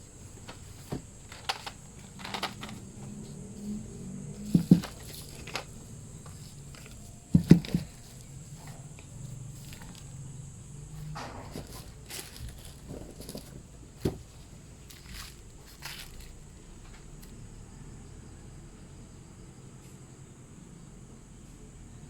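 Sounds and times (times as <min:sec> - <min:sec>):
objects knocking and thumping: 0:00.0 - 0:03.4, 0:04.4 - 0:10.1, 0:11.0 - 0:16.4.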